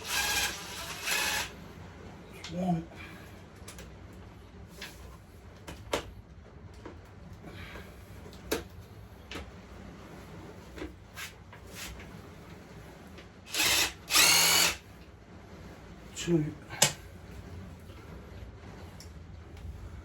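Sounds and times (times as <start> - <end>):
impact gun spinning a bolt: 13.5 - 14.8.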